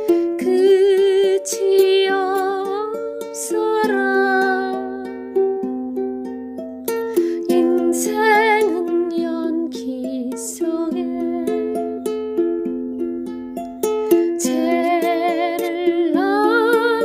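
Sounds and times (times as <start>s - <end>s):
ukulele playing gentle tune: 0.0s - 17.0s.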